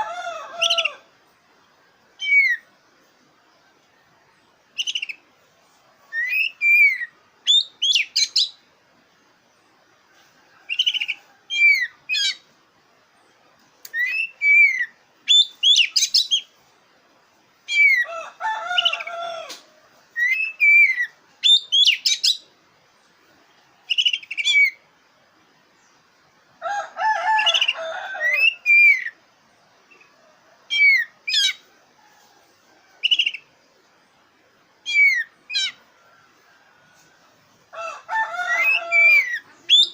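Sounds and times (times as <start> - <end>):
magpie-robin whistled song: 2.2 - 2.7, 4.7 - 5.2, 6.1 - 8.6, 10.7 - 12.4, 13.8 - 16.5, 17.7 - 18.1, 20.1 - 22.5, 23.9 - 24.8, 27.4 - 29.2, 30.7 - 31.6, 33.0 - 33.5, 34.8 - 35.8, 38.5 - 39.9
harsh chattering bird call: 34.8 - 35.9, 38.4 - 39.9.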